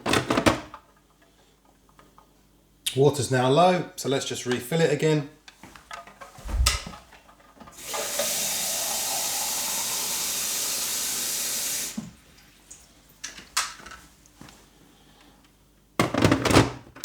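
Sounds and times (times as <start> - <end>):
tap water running into container: 7.7 - 13.0.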